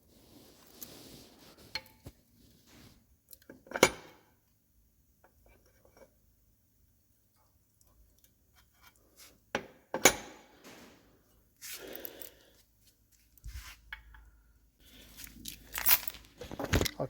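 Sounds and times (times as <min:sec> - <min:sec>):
metal parts clunking: 0:15.3 - 0:17.0.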